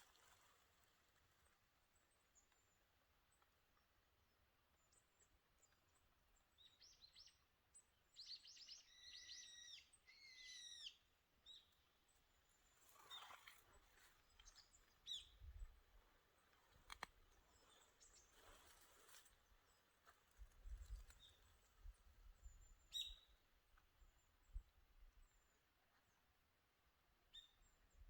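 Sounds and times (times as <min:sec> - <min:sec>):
small birds chirping: 0:04.8 - 0:24.6.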